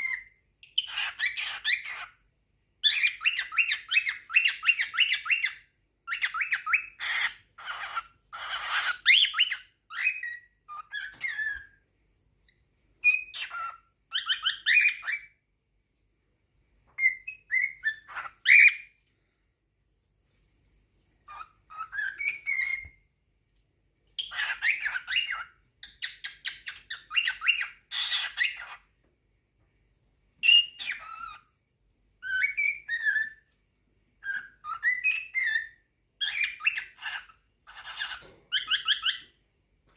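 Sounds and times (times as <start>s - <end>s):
cockatiels chattering and whistling: 0.0s - 2.2s, 2.8s - 11.8s, 12.4s - 15.4s, 16.9s - 18.9s, 21.2s - 23.0s, 24.2s - 28.9s, 30.4s - 31.5s, 32.2s - 33.5s, 34.2s - 39.9s.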